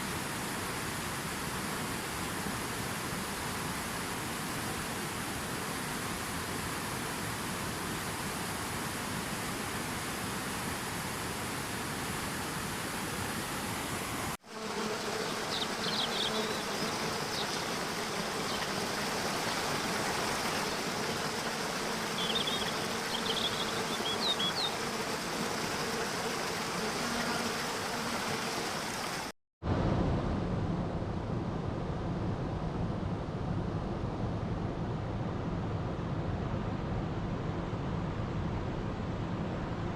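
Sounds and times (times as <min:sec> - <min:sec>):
flowing water rushing: 0:15.3 - 0:29.3
bird chirping: 0:15.4 - 0:17.6, 0:22.2 - 0:24.8.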